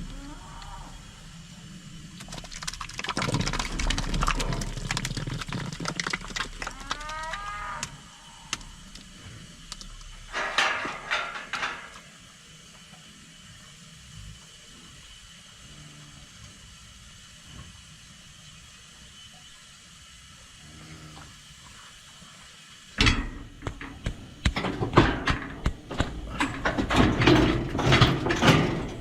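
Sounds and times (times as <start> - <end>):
cow mooing: 0.0 - 1.1, 6.7 - 8.1
cow clattering in metal pen: 10.2 - 12.1, 23.0 - 29.0.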